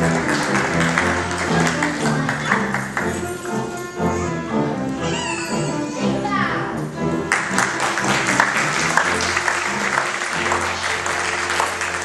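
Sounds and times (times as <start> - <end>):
audience applauding: 0.0 - 3.6, 7.3 - 12.0
music playing: 0.0 - 12.0.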